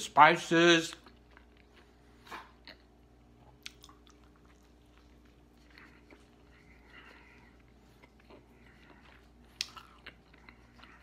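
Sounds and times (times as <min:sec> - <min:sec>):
person chewing food: 0:00.9 - 0:11.0.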